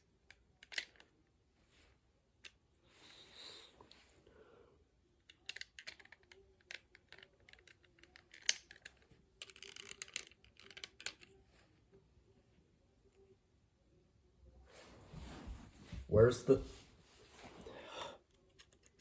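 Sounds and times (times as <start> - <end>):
plastic toy parts clicking: 0.2 - 1.1, 5.2 - 11.3, 18.3 - 19.0.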